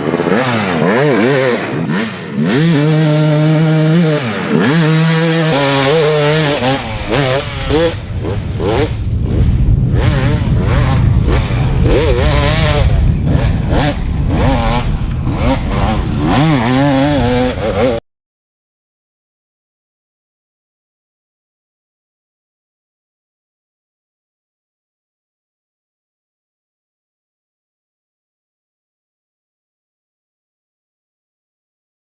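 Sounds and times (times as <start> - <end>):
heavy rushing noise: 0.0 - 18.0
two-stroke engine revving: 0.0 - 18.0.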